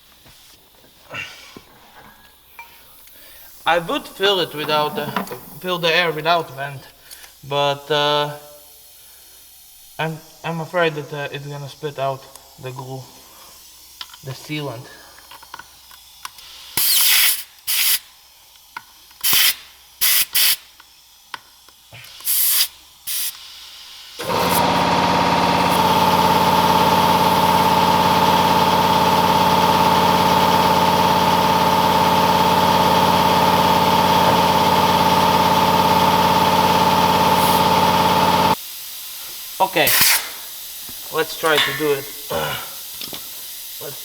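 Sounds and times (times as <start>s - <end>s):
compressed air hissing: 0.0s - 18.4s, 19.0s - 20.8s, 21.7s - 28.4s, 32.8s - 44.0s
air compressor whining: 1.1s - 8.2s, 24.2s - 44.0s.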